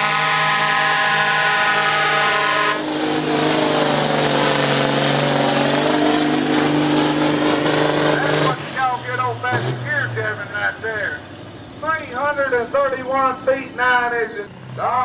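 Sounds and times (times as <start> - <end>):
truck air horn blast: 0.0 - 8.6
diesel truck engine under load: 0.0 - 15.0.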